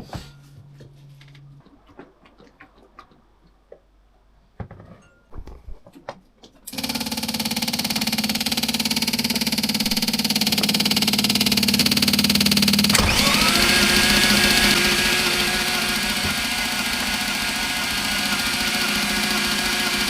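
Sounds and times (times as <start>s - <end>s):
generator droning: 6.7s - 20.0s.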